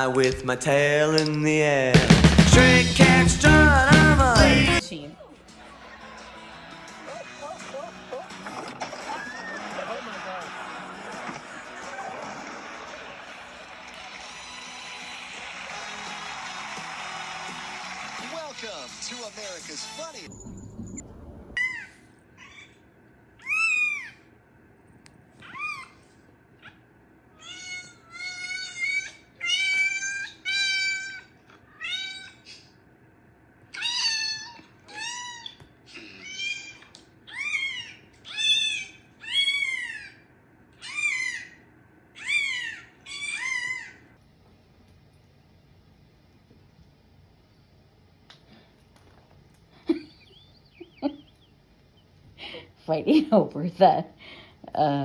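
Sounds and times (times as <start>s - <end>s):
cat meowing: 27.4s - 32.6s, 33.8s - 40.2s.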